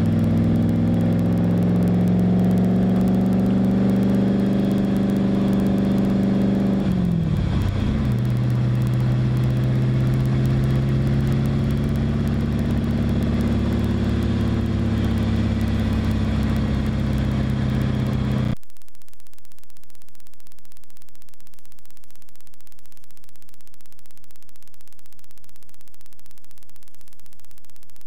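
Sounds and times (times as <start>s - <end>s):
car engine running: 0.0s - 18.6s
road noise: 0.0s - 18.6s.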